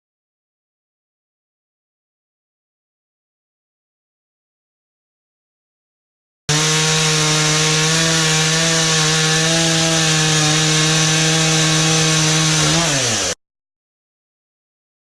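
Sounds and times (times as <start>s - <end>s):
chainsaw cutting wood: 6.5s - 13.4s.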